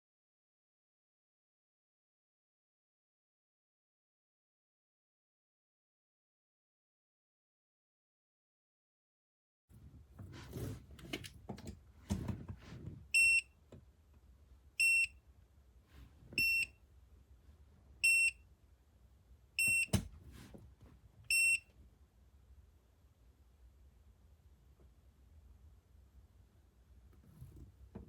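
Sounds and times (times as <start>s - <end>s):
short high beeps: 14.8s - 15.1s, 16.4s - 16.7s, 18.0s - 18.4s, 21.3s - 21.6s.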